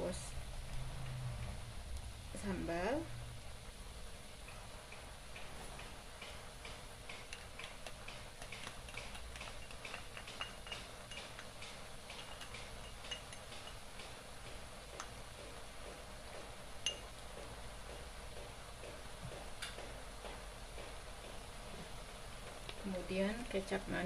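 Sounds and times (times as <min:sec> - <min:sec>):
food crackling in a wok: 0:03.5 - 0:17.3
spatula clicking on wok: 0:06.2 - 0:14.2.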